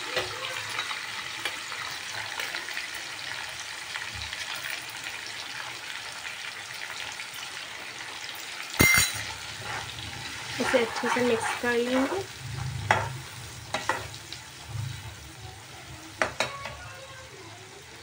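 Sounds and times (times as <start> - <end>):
tomatoes sizzling in hot oil: 0.0 - 18.0
metal utensil clinking on pan: 8.8 - 9.4.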